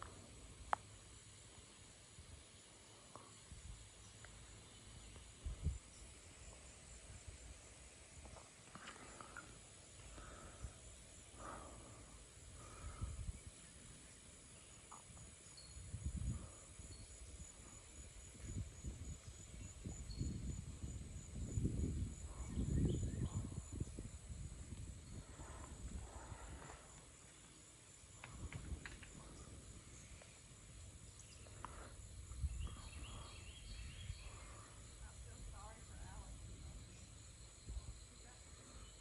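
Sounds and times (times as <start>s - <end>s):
insects trilling: 0.0s - 39.0s
wind buffeting microphone: 15.8s - 26.9s, 28.2s - 30.2s, 32.1s - 38.0s.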